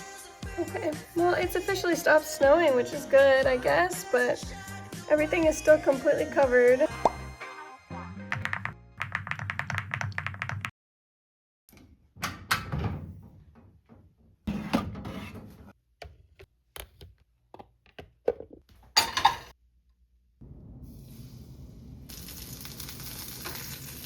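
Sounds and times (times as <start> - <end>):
door opening and shutting: 11.7 - 15.5
household knocks and clunks: 12.2 - 19.5.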